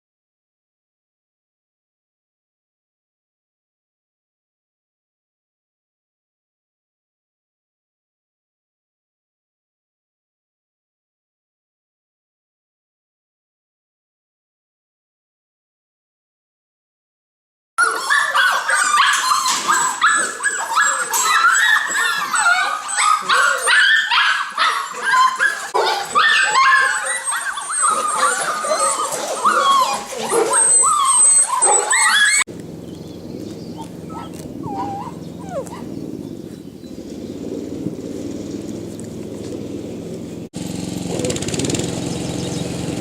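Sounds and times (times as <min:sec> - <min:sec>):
puppies yelping and whining: 0:17.8 - 0:37.4
low hum: 0:26.8 - 0:40.7.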